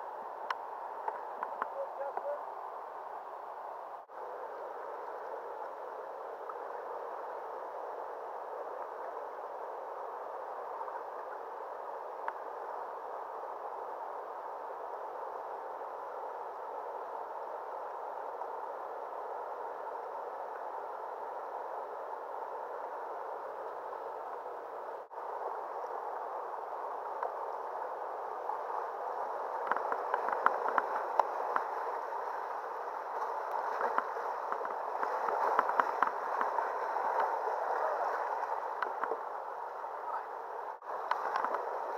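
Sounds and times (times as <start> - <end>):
river water rushing: 0.0 - 41.9
water splashing and crackling: 28.4 - 41.9.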